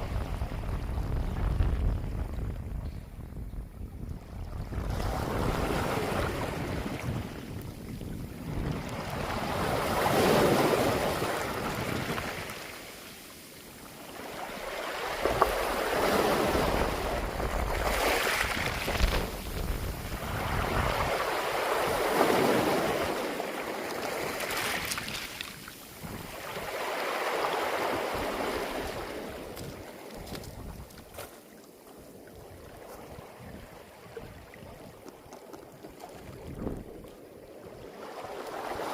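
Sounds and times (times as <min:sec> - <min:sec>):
waves rolling over pebbles: 0:05.2 - 0:33.1.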